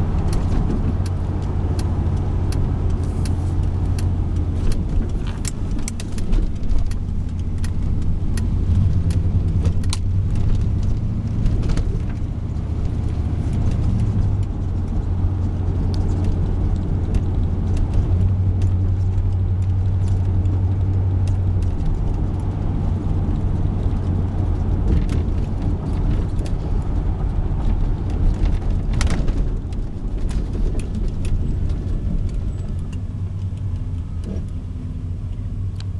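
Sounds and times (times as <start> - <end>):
pickup truck engine droning: 0.0 - 35.9
light clicks and rattles: 0.2 - 34.7.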